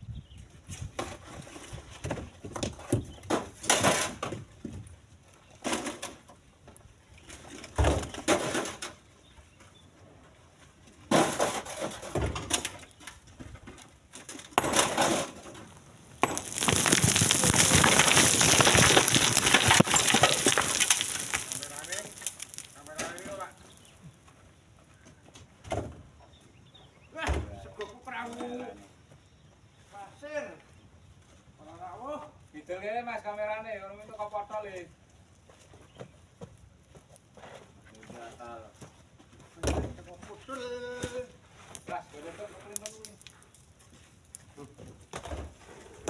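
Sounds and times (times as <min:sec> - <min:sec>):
stones knocking and clattering: 0:14.5 - 0:24.0
rushing clatter of stones: 0:14.6 - 0:23.9.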